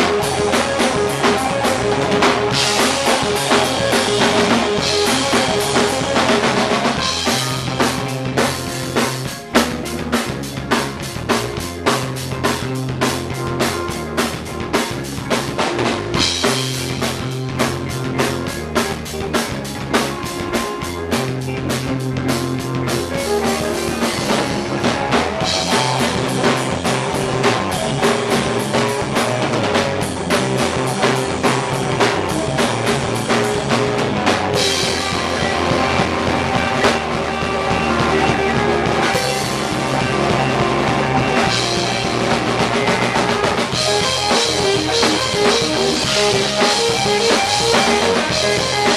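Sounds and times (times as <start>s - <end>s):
drum kit beat: 0.0s - 48.9s
rock band playing: 0.0s - 48.9s.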